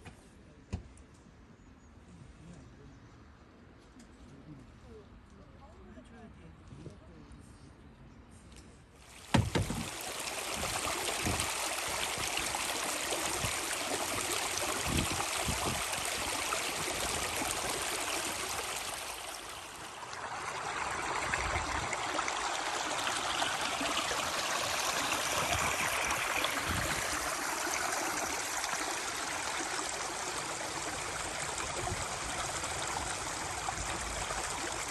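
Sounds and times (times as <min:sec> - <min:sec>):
stream running water: 0:09.0 - 0:34.9.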